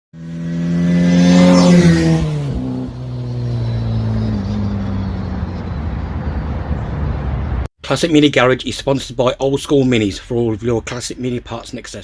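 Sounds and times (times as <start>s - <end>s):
car engine running hard: 0.2s - 7.7s.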